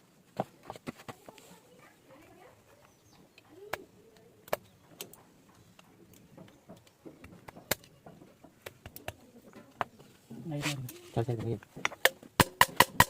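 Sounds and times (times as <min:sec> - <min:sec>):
hand tools tapping on metal: 0:04.1 - 0:10.1, 0:10.8 - 0:13.0.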